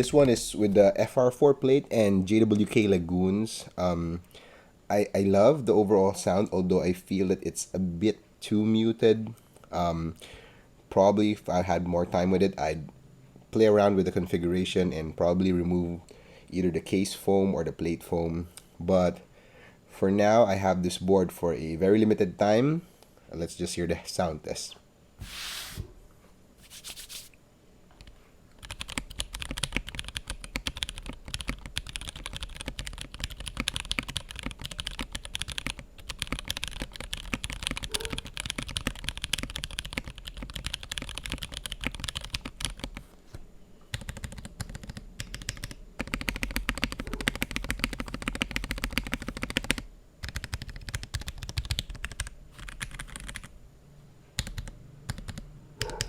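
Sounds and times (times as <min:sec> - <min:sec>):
keyboard typing: 0:28.0 - 0:43.0, 0:43.9 - 0:53.5, 0:54.4 - 0:56.0.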